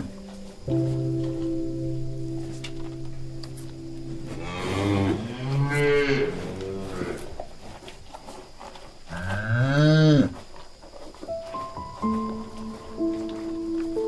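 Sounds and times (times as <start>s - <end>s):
cow mooing: 4.3s - 7.3s.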